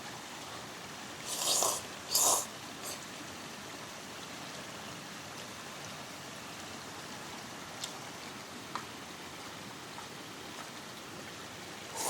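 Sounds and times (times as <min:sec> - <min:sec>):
breathy mouth sounds eating: 0:01.2 - 0:03.0.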